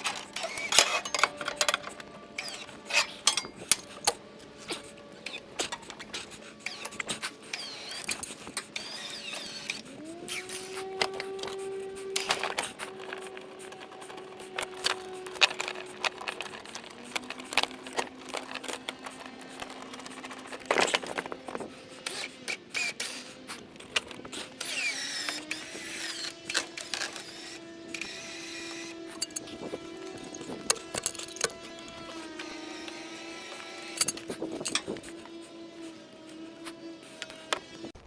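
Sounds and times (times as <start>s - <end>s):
engine whine: 0.0s - 38.0s.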